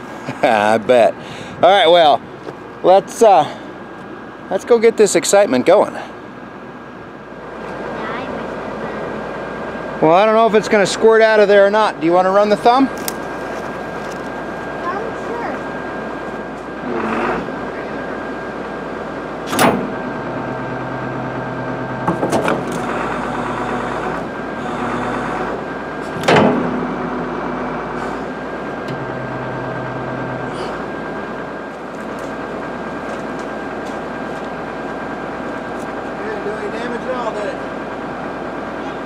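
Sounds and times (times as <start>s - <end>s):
excavator running: 0.0s - 39.0s
sharp metallic knocks: 19.5s - 20.1s, 26.2s - 26.9s.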